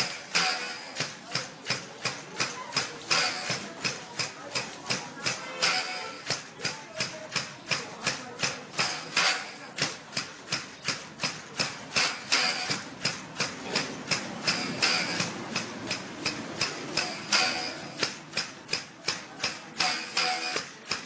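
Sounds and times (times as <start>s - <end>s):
mallet striking bow string: 11.3s - 21.0s.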